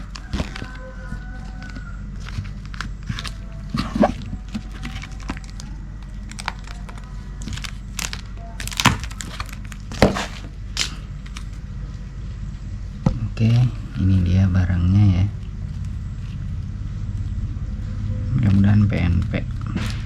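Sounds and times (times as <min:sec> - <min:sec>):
packaging crinkling and tearing: 0:00.0 - 0:11.6
steady low hum: 0:00.0 - 0:20.0.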